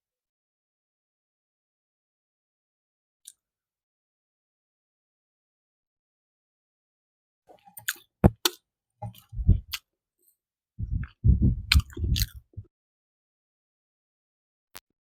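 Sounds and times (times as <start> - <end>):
person chewing food: 7.6 - 9.8, 11.0 - 12.5
mouth clicks: 10.9 - 12.6.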